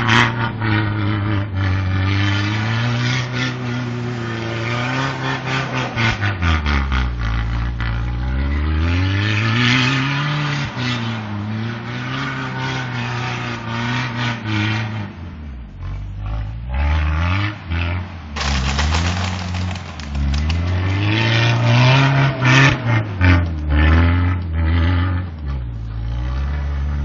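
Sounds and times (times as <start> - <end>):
tyres spinning in snow: 18.4 - 21.7.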